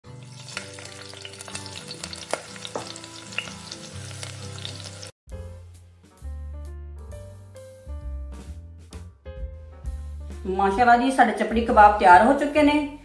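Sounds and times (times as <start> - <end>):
music: 0.0 - 13.0
food frying in hot oil: 0.1 - 5.2.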